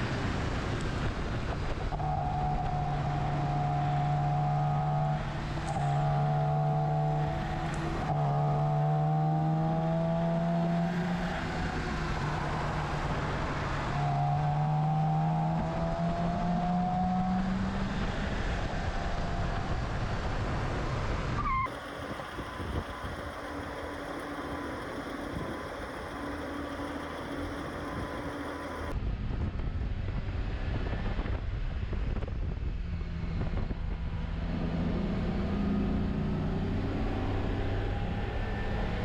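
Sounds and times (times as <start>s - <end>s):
car engine accelerating: 21.4s - 29.0s.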